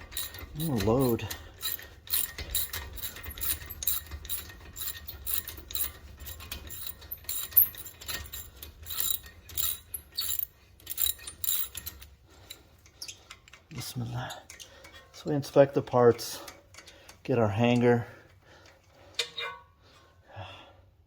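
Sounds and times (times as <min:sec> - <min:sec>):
ratchet wrench clicking: 0:00.0 - 0:13.6.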